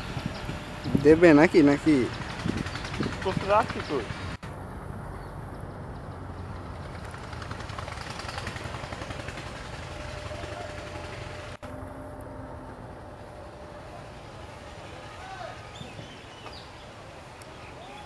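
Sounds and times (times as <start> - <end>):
train wheels rumbling on rails: 0.0 - 4.4, 6.4 - 11.7.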